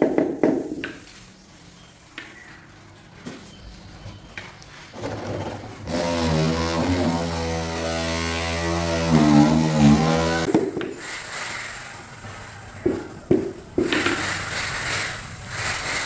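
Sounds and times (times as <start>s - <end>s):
motor humming: 5.4s - 10.5s.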